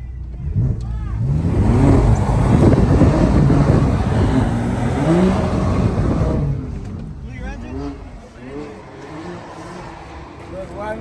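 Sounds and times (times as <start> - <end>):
car engine revving hard: 0.0 - 11.0
tyres hissing on wet pavement: 2.2 - 11.0.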